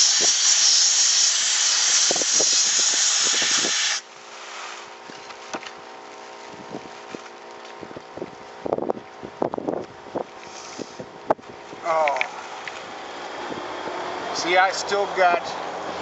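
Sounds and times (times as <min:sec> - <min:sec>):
sandblasting gun hissing: 0:00.0 - 0:04.9, 0:10.5 - 0:11.0
air compressor humming: 0:00.0 - 0:05.7.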